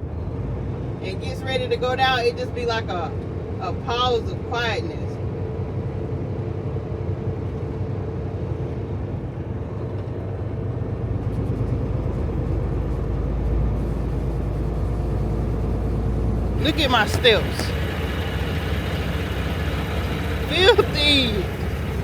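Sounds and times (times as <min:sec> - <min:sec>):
diesel truck engine: 0:12.0 - 0:22.0
road noise: 0:13.0 - 0:22.0.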